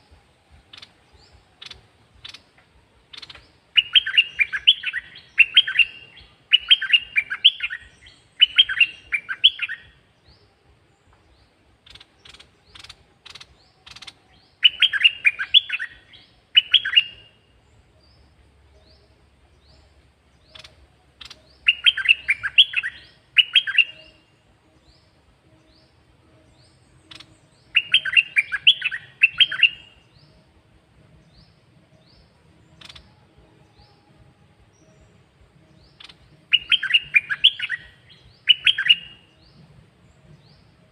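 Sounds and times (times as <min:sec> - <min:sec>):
bird singing warbling phrases: 0:00.0 - 0:40.9
soft bird chirps: 0:00.0 - 0:40.9.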